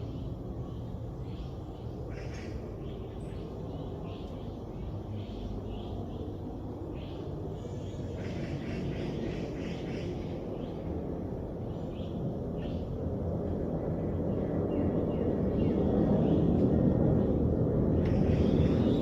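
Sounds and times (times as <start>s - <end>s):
distant engine rumble: 7.6s - 19.0s.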